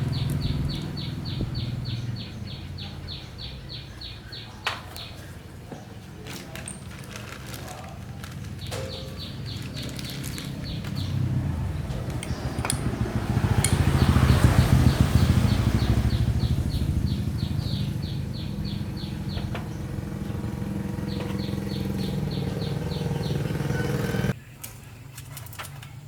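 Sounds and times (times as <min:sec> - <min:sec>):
small petrol engine running: 0:00.0 - 0:03.2, 0:06.6 - 0:24.4.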